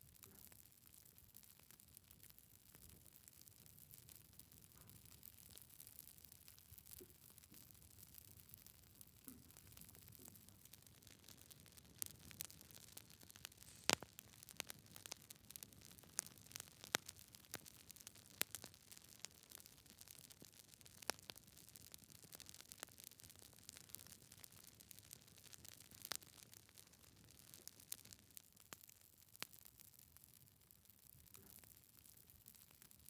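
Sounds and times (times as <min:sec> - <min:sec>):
logs crackling in fireplace: 0:03.7 - 0:33.0
faint fire hiss: 0:03.8 - 0:29.8.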